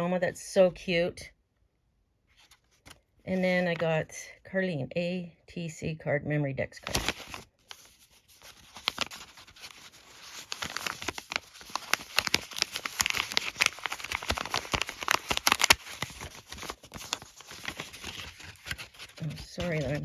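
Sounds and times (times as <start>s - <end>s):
paper and plastic crinkling: 6.8s - 20.0s.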